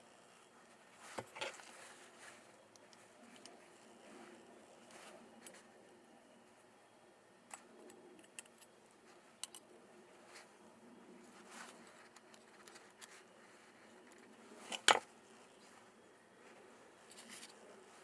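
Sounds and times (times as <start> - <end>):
small parts clicking and tapping: 7.5 - 9.7.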